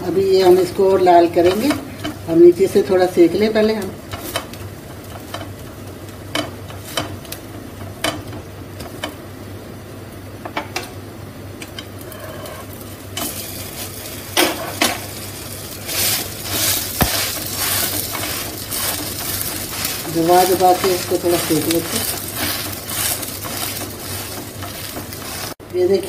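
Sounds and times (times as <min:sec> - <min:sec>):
bread frying in oil sizzling: 0:00.0 - 0:26.0
utensil tapping and scraping pan: 0:01.3 - 0:02.2, 0:06.3 - 0:09.2, 0:15.9 - 0:25.6.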